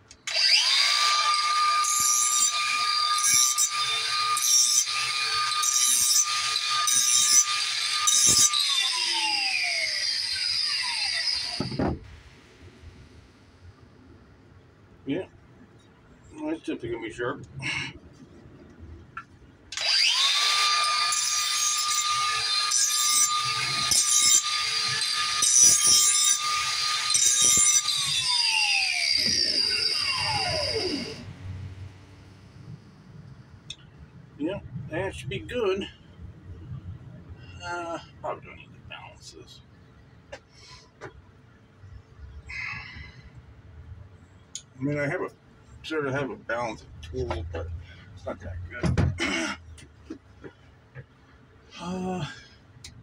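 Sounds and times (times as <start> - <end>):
power grinder whining: 0.2 - 12.0, 19.7 - 31.4
grinder spinning down: 0.3 - 11.8, 19.7 - 31.4
knock: 48.8 - 49.2.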